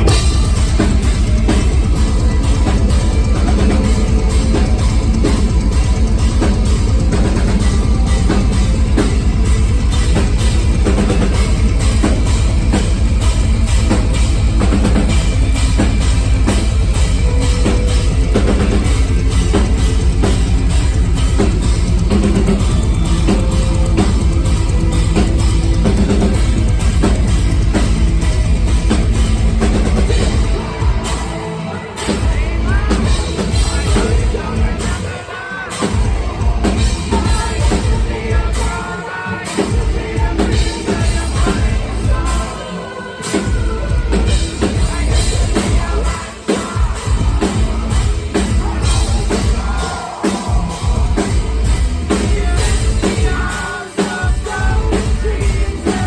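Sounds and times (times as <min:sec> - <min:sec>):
pounding bass drum: 0:00.0 - 0:35.2, 0:35.8 - 0:38.9, 0:39.6 - 0:42.6, 0:43.4 - 0:56.0
live metal band playing: 0:00.0 - 0:56.0.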